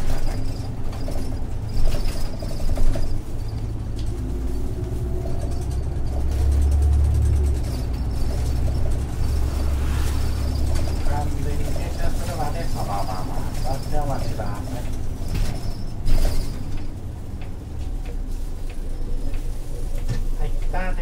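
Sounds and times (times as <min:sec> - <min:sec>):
bus diesel engine running: 0:00.0 - 0:21.0
faint rising whine: 0:08.5 - 0:12.0.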